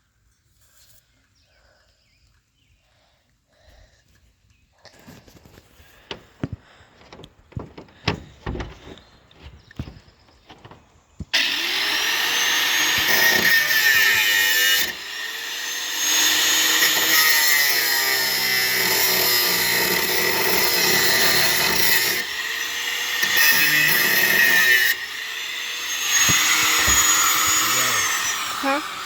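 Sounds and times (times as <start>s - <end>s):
electric power tool motor whine: 10.6s - 29.0s.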